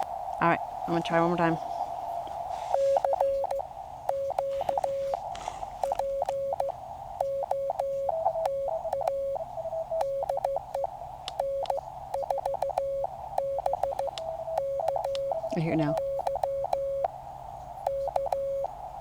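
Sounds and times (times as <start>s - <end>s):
morse code tone: 0.0s - 17.2s, 17.8s - 18.8s
faint higher morse signal: 0.0s - 19.0s
radio receiver hiss: 0.0s - 19.0s
key clicks: 3.0s - 5.2s, 5.8s - 6.7s, 10.0s - 12.8s, 13.5s - 15.2s.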